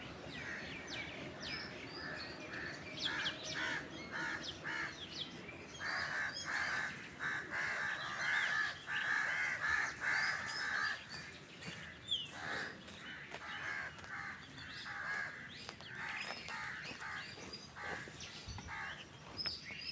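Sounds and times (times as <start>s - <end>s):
birds making harsh calls: 5.7s - 19.4s.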